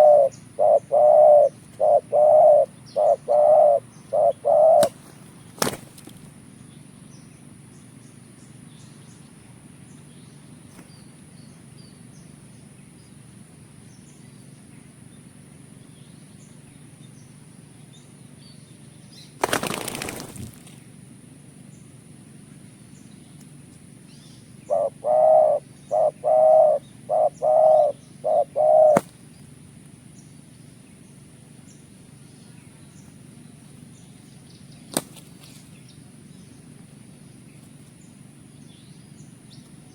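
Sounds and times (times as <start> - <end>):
dove cooing: 0.0 - 5.0, 24.6 - 29.1
small birds chirping: 0.0 - 20.9, 21.6 - 39.9
wings flapping: 4.7 - 6.3, 19.4 - 20.8, 34.9 - 35.7.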